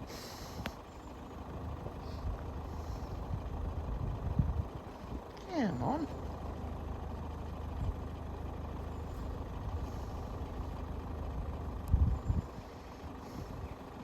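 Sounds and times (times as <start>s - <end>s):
engine idling rumble: 0.0s - 14.0s.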